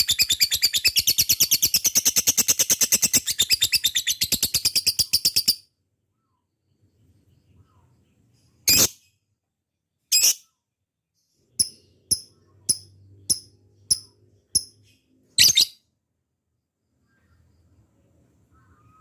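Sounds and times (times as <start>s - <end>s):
lovebird sharp chirps: 11.5s - 15.9s.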